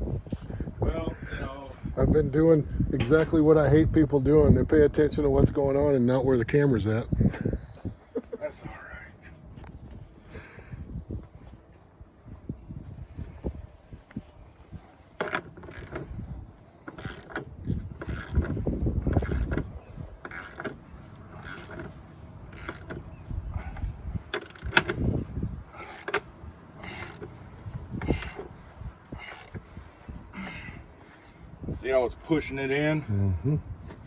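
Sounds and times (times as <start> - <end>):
bead breaker clicking and creaking: 15.2 - 16.2, 16.9 - 21.9, 22.5 - 23.0, 24.3 - 25.1, 25.8 - 27.4, 28.0 - 28.5, 29.2 - 29.6.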